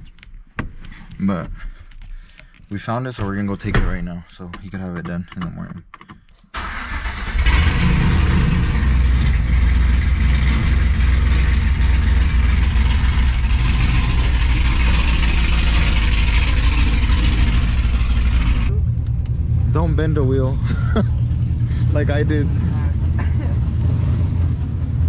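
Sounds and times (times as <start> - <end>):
truck engine running: 6.6 - 25.0.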